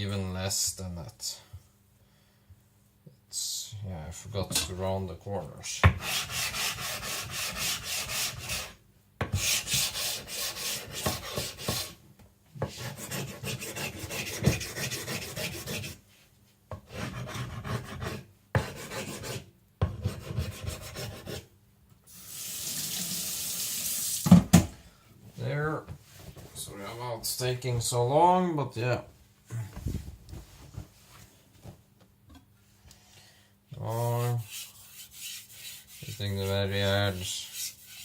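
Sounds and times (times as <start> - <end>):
blade rubbing on water stone: 34.4 - 36.6, 37.2 - 38.0.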